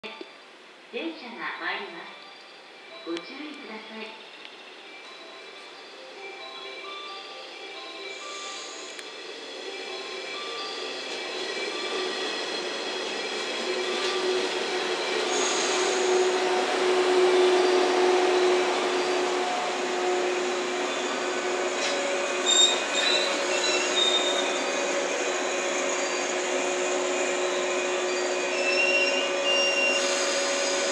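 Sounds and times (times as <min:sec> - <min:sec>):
electric train running hum: 0:02.2 - 0:30.9
high wheel squeals: 0:15.2 - 0:30.9.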